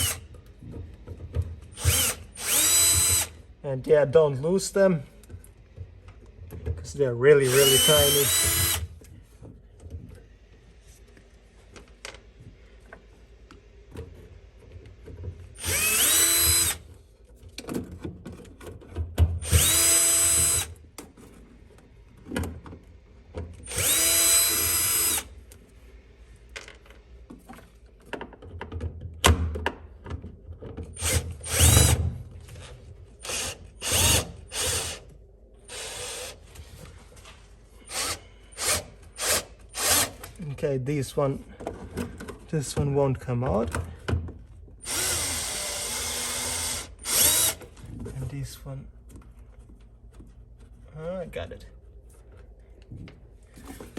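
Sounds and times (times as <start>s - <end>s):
power drill whirring: 0.0s - 0.3s, 1.7s - 3.4s, 7.4s - 8.9s, 15.6s - 16.9s, 19.4s - 20.8s, 23.6s - 25.3s, 31.0s - 32.0s, 32.6s - 35.1s, 35.7s - 36.5s, 37.8s - 40.3s, 44.8s - 47.8s.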